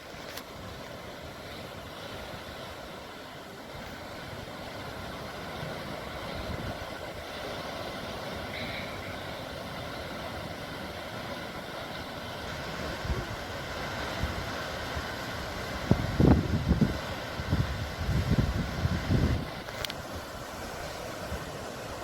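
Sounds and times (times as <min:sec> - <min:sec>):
sea waves washing: 0:00.0 - 0:22.0
wind rumbling on microphone: 0:03.7 - 0:07.6, 0:12.4 - 0:22.0.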